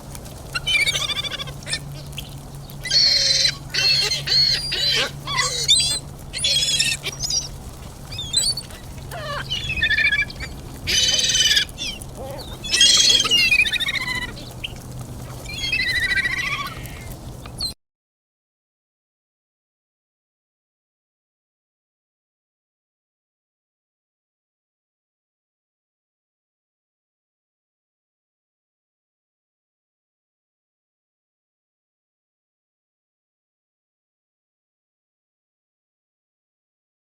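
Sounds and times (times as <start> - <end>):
low steady hum: 0.0 - 17.7
birds squawking: 0.0 - 17.8.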